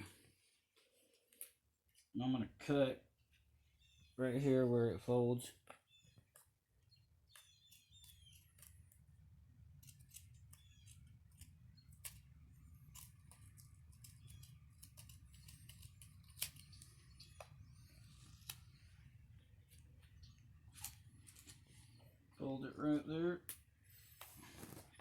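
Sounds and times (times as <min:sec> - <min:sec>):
scissors snipping tape: 0:09.8 - 0:16.9.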